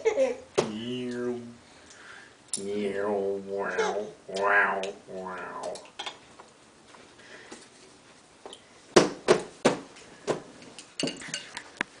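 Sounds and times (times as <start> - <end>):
sharp knocks of hard objects: 9.0 - 10.5.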